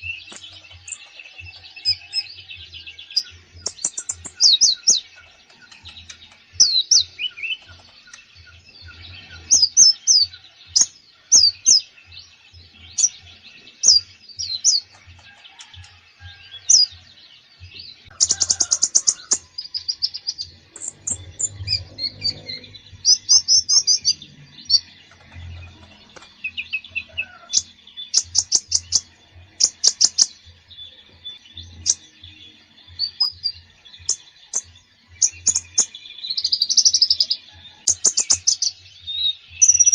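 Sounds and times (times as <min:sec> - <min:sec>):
bird singing: 0:00.0 - 0:39.9
bird rattling trills: 0:18.1 - 0:19.5.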